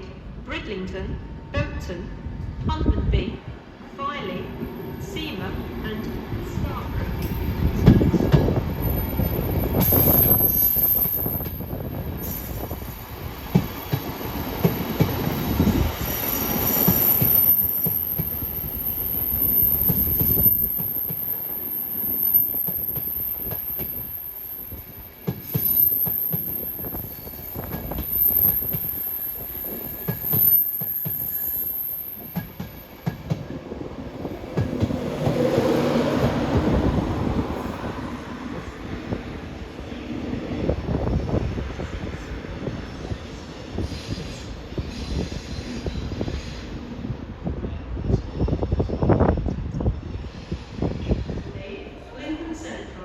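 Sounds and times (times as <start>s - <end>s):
train wheels rumbling and clicking: 6.0s - 39.7s
high-pitched wheel squeal: 8.8s - 13.0s, 14.3s - 33.0s.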